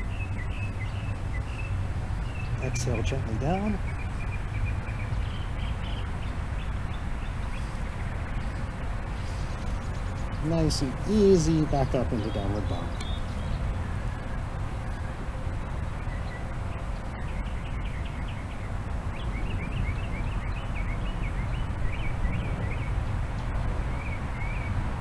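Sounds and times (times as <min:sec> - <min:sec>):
songbird chirping: 0:00.0 - 0:24.9.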